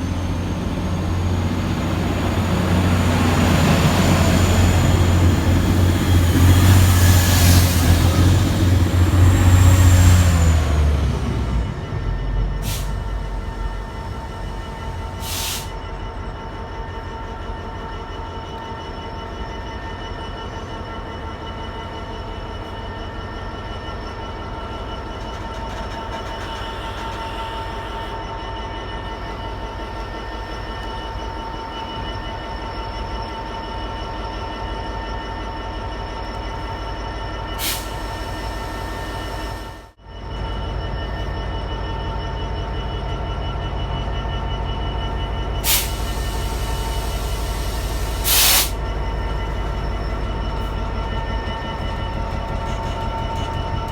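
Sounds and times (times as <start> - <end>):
freight train rumble: 0.0 - 53.9
short sharp hiss: 48.2 - 48.8.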